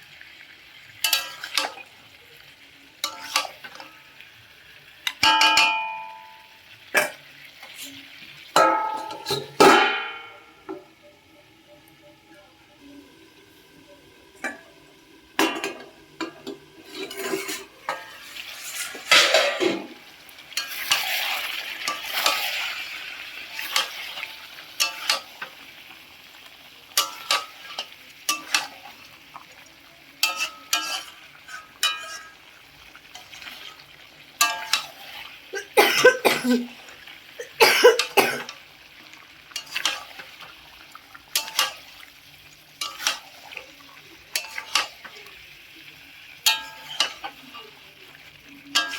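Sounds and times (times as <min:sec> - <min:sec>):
food sizzling in a pan: 0:00.0 - 0:48.9
spatula scraping a pan: 0:01.0 - 0:01.9, 0:03.0 - 0:04.0, 0:16.3 - 0:25.6, 0:30.2 - 0:35.4, 0:39.5 - 0:43.6, 0:44.2 - 0:45.2, 0:46.4 - 0:47.8.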